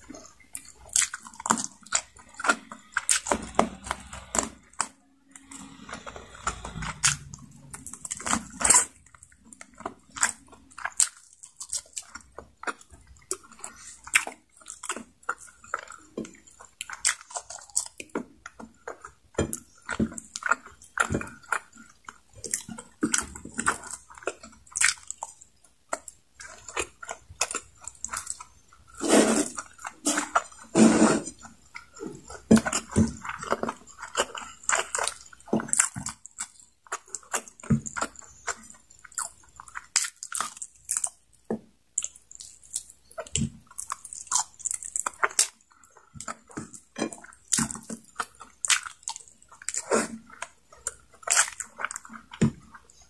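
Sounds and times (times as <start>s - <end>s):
person chewing food: 0.0s - 53.0s.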